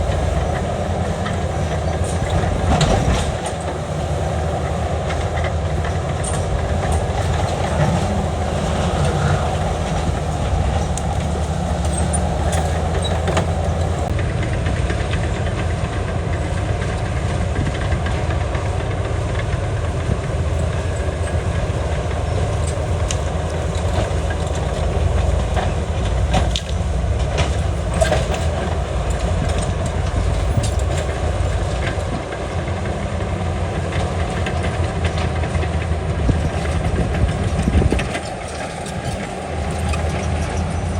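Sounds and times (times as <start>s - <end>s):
metallic clanks and knocks: 0.0s - 18.7s, 19.3s - 32.9s
diesel engine under load: 0.0s - 40.9s.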